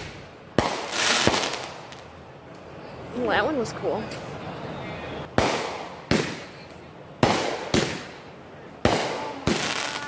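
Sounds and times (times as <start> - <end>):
fireworks bursting: 0.0 - 2.1, 5.2 - 10.0.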